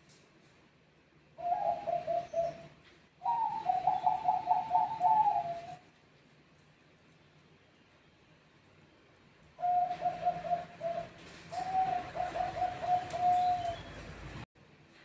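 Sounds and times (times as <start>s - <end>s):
dove cooing trilled phrases: 1.4s - 5.8s, 9.6s - 13.9s.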